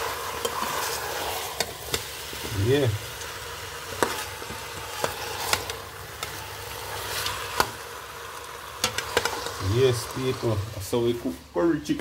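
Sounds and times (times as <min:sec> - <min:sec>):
spoon stirring food: 0:00.0 - 0:09.6
chicken sizzling in a pot: 0:00.0 - 0:12.0.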